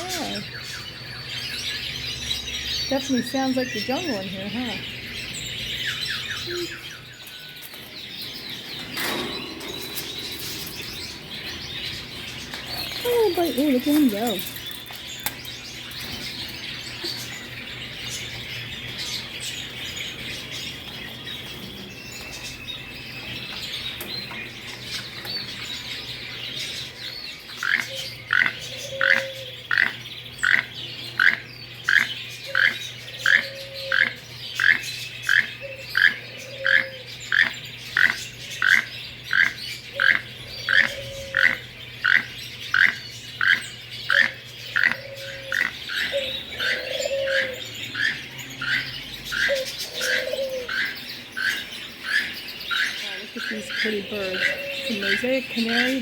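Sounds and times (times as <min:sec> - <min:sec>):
caged birds chirping: 0:00.0 - 0:56.0
dove cooing: 0:27.7 - 0:29.6, 0:32.5 - 0:34.2, 0:35.6 - 0:37.1, 0:40.0 - 0:42.4, 0:43.5 - 0:52.3, 0:53.3 - 0:56.0.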